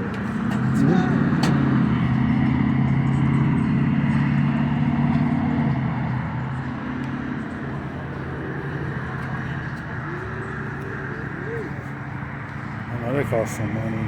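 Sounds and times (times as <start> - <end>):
car engine running: 6.2 - 14.0.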